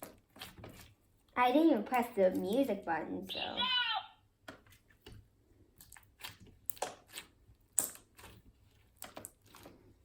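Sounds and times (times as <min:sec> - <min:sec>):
slime crackling and popping: 0:05.8 - 0:09.9.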